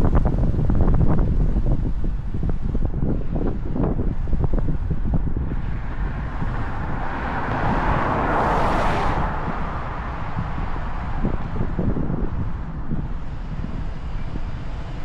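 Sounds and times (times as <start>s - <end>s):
motorcycle engine rumble: 0.0s - 15.0s
wind buffeting microphone: 0.0s - 15.0s
vehicle rushing past: 5.2s - 12.6s.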